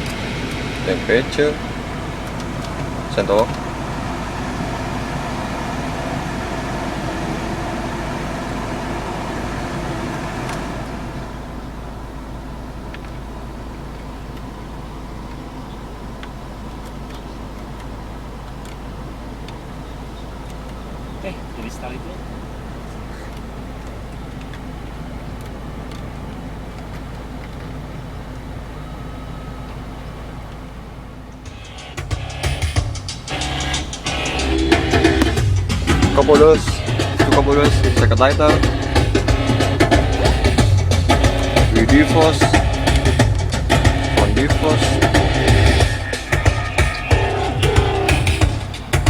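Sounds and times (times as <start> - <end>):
faint clicks of controls: 0.0 - 4.8, 9.3 - 49.0
blower fan whoosh: 0.0 - 11.7
car engine idling: 0.0 - 49.0.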